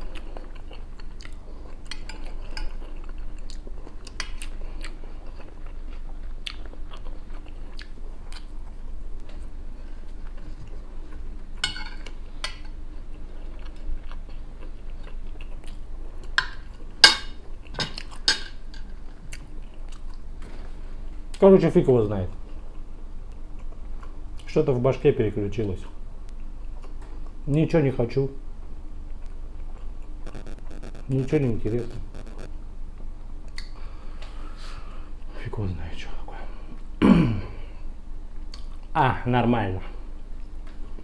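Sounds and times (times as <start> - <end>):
man chewing food: 0.0 - 18.3, 18.9 - 21.3, 22.3 - 24.5, 26.3 - 27.4, 28.6 - 31.0.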